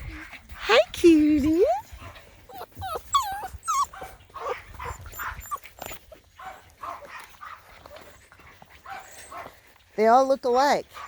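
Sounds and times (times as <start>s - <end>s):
puppies whining and yipping: 1.3s - 9.5s.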